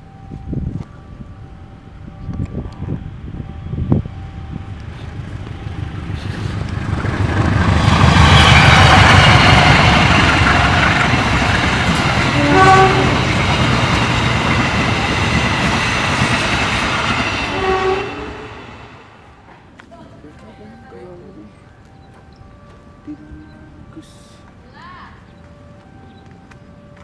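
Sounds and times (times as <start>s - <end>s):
passenger train passing: 0.0s - 27.0s
train horn toot: 12.2s - 14.1s, 17.1s - 19.2s.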